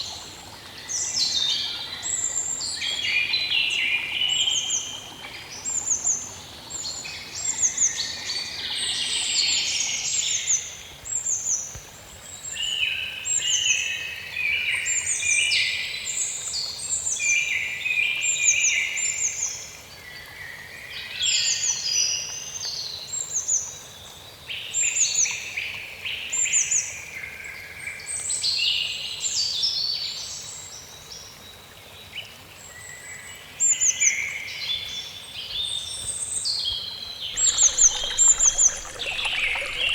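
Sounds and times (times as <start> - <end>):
songbirds singing: 31.4 - 39.9.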